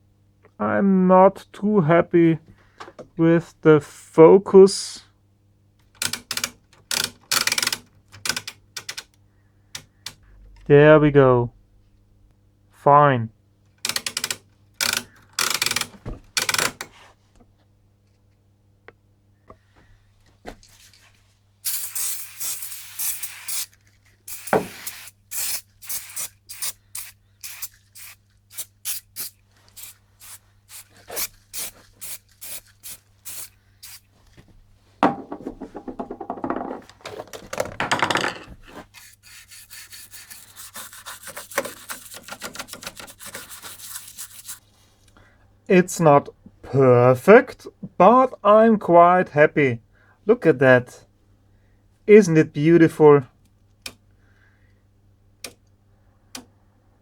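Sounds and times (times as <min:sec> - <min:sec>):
low mains hum: 0:00.0 - 0:41.2, 0:44.6 - 0:57.0
sharp clicks and knocks: 0:05.9 - 0:09.2, 0:13.8 - 0:17.5
rubbing and scraping: 0:38.4 - 0:44.8.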